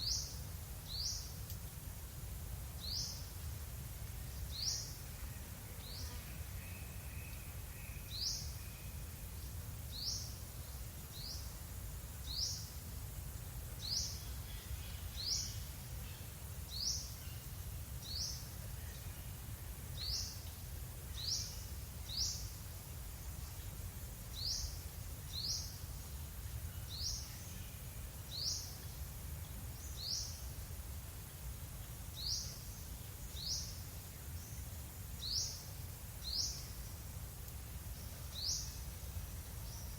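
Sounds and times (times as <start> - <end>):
songbird high-pitched call: 13.8 - 17.4, 26.7 - 28.9, 29.8 - 30.5, 32.2 - 34.6, 35.2 - 36.9, 38.0 - 38.9.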